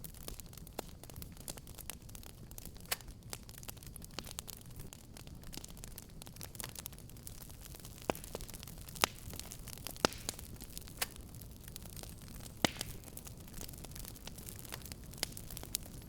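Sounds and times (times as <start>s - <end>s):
wood fire crackling: 0.0s - 16.0s
loud sharp pops: 10.0s - 10.4s, 12.6s - 13.0s.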